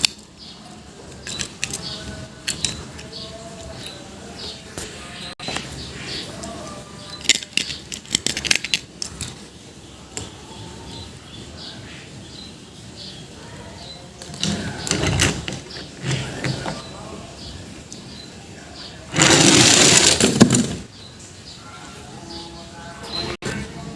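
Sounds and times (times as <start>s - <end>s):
small hard objects clicking: 1.1s - 4.0s, 6.4s - 9.4s, 19.1s - 20.8s.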